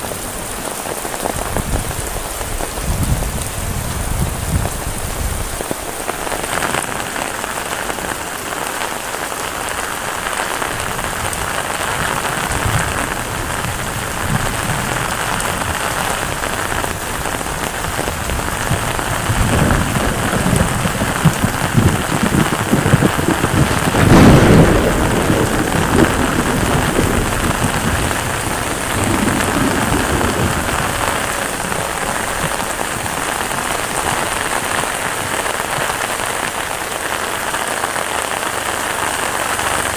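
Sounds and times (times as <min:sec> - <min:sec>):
heavy rain: 0:00.0 - 0:39.9
thunder rumble: 0:10.6 - 0:39.9.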